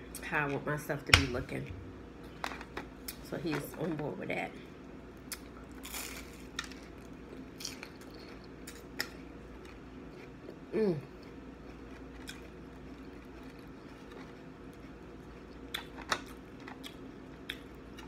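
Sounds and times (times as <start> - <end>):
person biting and chewing: 11.2 - 18.0.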